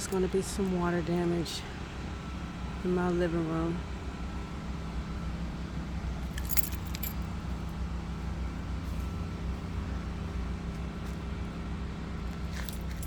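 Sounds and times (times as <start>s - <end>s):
low mechanical hum: 0.0s - 13.0s
keys jingling: 6.2s - 7.3s, 12.4s - 13.0s.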